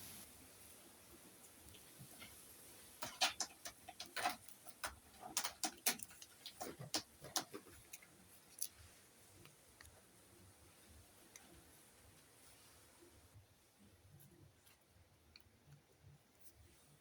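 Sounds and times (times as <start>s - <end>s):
light clicks and crackles: 1.2s - 13.2s.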